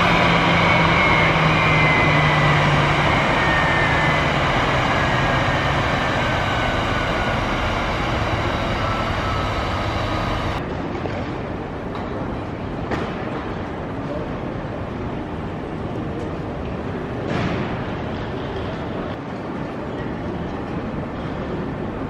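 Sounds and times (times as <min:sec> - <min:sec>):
jet engines running: 0:00.0 - 0:14.5.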